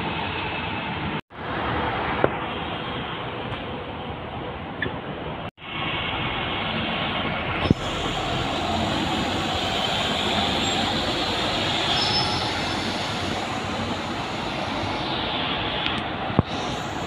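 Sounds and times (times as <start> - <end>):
train wheel and track noise: 0.0 - 17.0
high-pitched wheel squeal: 9.0 - 13.2.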